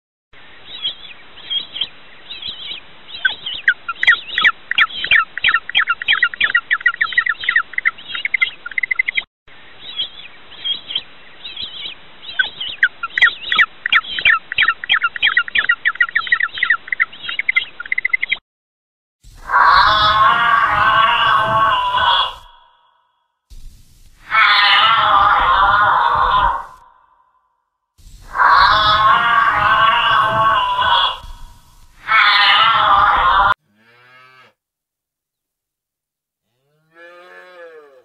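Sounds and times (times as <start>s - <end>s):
bird high chirps: 0.7s - 9.2s, 9.8s - 18.4s, 28.2s - 33.2s.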